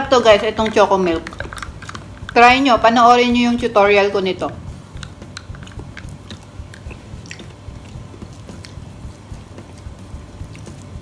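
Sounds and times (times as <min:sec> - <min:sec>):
chewing and biting: 0:01.2 - 0:02.4, 0:05.0 - 0:11.0.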